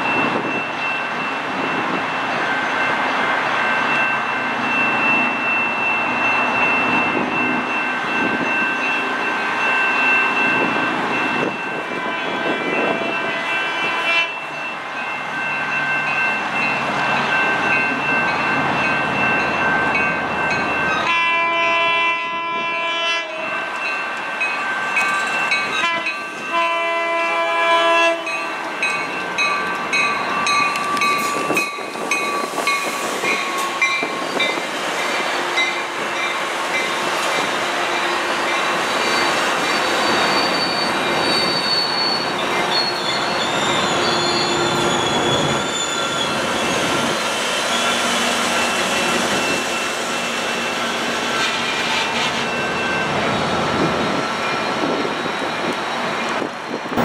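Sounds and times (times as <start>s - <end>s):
diesel locomotive passing: 0.0s - 57.0s
train horn blasts: 13.5s - 14.4s, 21.0s - 23.6s, 25.8s - 28.5s
train wheels rumbling: 22.3s - 57.0s
high wheel squeal: 38.6s - 57.0s.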